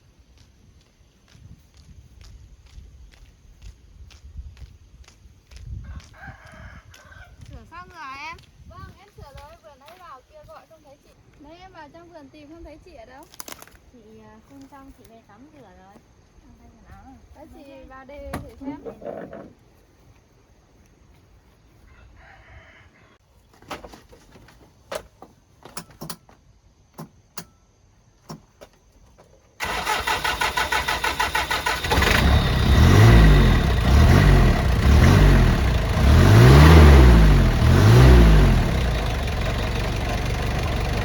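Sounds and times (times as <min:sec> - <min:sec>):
truck engine cranking: 0:29.6 - 0:41.0
truck engine revving and idling: 0:29.6 - 0:41.0.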